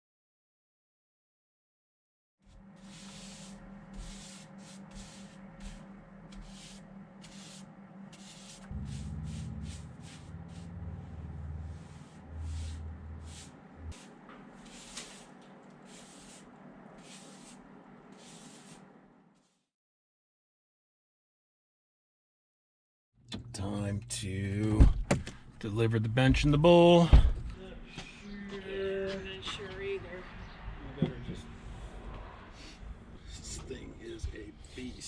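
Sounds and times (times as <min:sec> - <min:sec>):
steady low hum: 0:02.5 - 0:19.2, 0:23.3 - 0:35.0
loud low rumble: 0:04.9 - 0:14.6.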